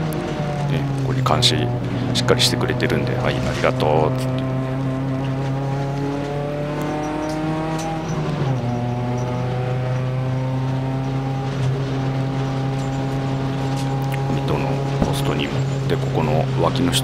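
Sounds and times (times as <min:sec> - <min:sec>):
race car engine from cabin: 0:00.0 - 0:17.0.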